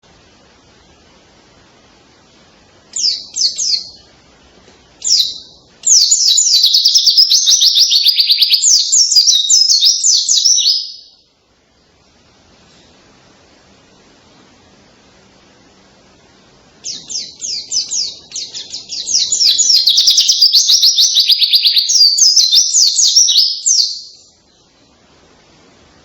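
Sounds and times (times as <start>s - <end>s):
bird singing canary-like song: 2.9s - 4.1s, 5.0s - 11.3s, 16.8s - 24.8s.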